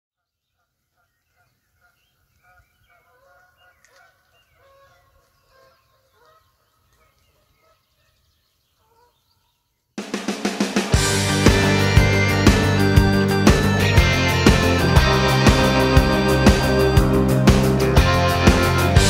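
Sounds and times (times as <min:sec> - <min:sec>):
faint bird calls: 0:00.2 - 0:09.9
loud music: 0:10.0 - 0:19.0.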